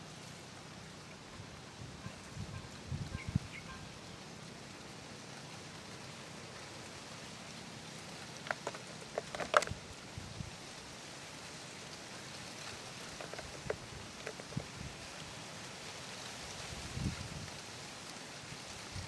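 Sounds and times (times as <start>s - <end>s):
hiss of flowing water: 0.0s - 19.0s
light clicks and taps: 8.4s - 9.8s, 12.7s - 14.6s.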